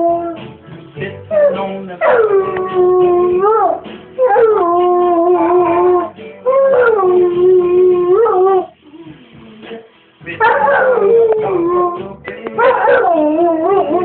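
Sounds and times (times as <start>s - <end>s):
song playing: 0.0s - 14.0s
dog howling: 1.3s - 8.7s, 10.4s - 12.0s, 12.6s - 14.0s.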